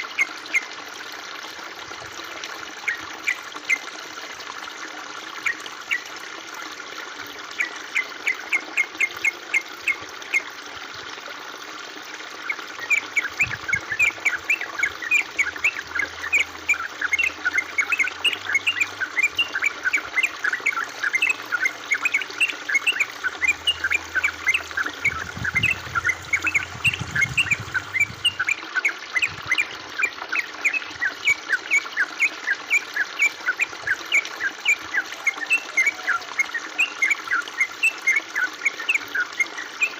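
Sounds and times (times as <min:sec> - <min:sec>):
trickling water hiss: 0:00.0 - 0:39.9
bird chirping rapidly: 0:12.8 - 0:28.6.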